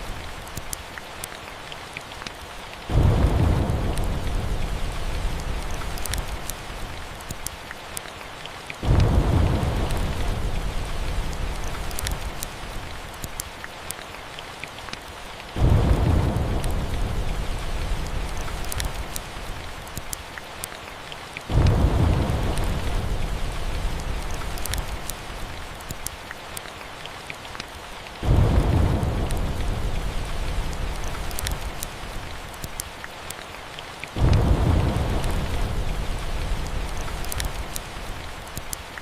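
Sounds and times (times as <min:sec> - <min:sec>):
steady rain: 0:00.0 - 0:39.0
wood fire crackling: 0:00.0 - 0:39.0
thunder rolling: 0:02.9 - 0:06.4, 0:08.8 - 0:12.4, 0:15.6 - 0:19.2, 0:21.5 - 0:25.0, 0:28.2 - 0:32.1, 0:34.2 - 0:38.1.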